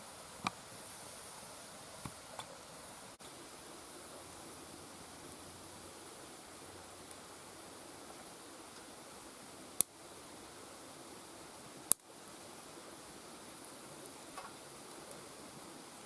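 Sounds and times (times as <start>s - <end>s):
campfire hissing: 0.0s - 16.0s
fire popping: 3.2s - 16.0s.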